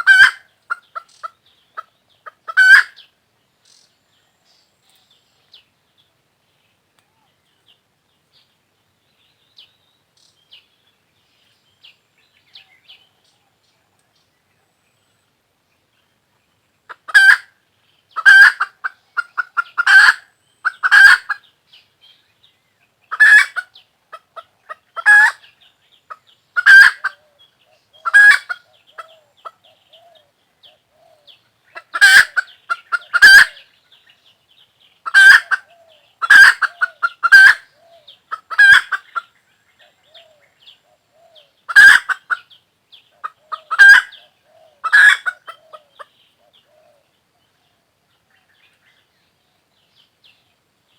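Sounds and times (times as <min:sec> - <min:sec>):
chicken calling: 0:00.0 - 0:03.0, 0:16.9 - 0:17.5, 0:18.2 - 0:21.4, 0:23.1 - 0:25.4, 0:26.1 - 0:27.4, 0:28.0 - 0:30.3, 0:30.9 - 0:33.7, 0:35.0 - 0:39.3, 0:41.0 - 0:42.5, 0:43.2 - 0:47.0.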